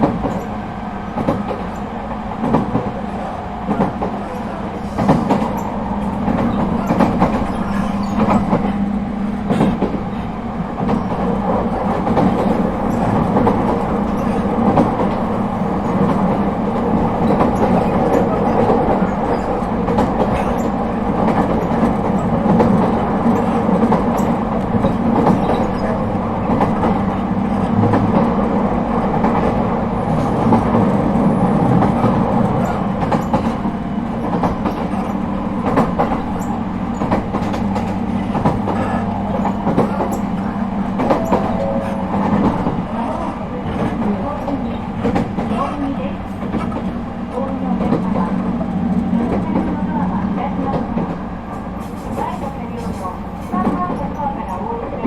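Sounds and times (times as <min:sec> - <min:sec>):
low train hum: 0:00.0 - 0:55.0
wheel on rail rumble: 0:00.0 - 0:55.0
wheels clicking over rail joints: 0:10.8 - 0:28.4, 0:31.6 - 0:42.8.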